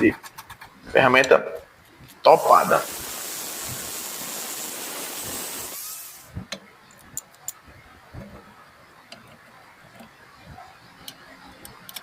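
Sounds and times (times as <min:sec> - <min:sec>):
steady hissing: 0:02.3 - 0:06.4.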